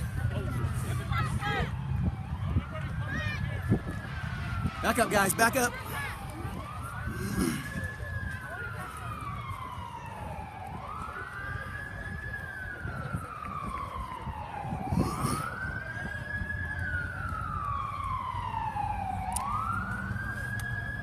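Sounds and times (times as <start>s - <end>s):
fire truck siren wailing: 0.0s - 21.0s.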